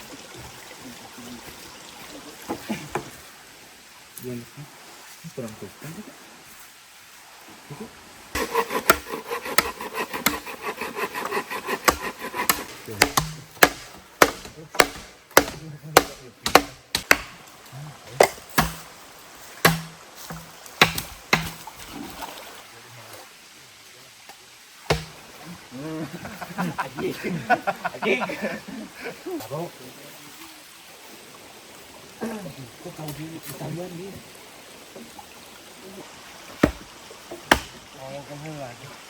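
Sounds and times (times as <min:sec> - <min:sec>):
blade chopping bamboo: 0:08.4 - 0:17.4, 0:18.2 - 0:18.9, 0:19.6 - 0:21.6, 0:24.9 - 0:25.2, 0:36.6 - 0:36.9, 0:37.5 - 0:37.8.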